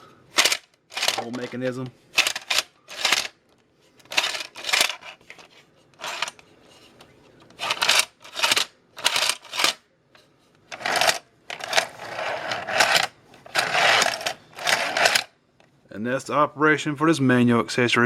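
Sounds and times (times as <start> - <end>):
plastic toy slide scraping: 0.4 - 1.4, 2.2 - 3.3, 4.0 - 9.8, 10.7 - 15.3.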